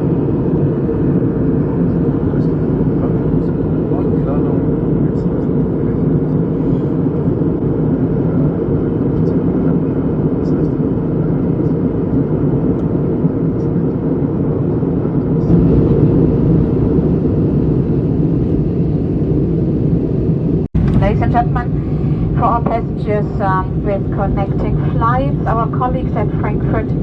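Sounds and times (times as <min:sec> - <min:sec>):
aircraft cabin engine rumble: 0:00.0 - 0:27.0.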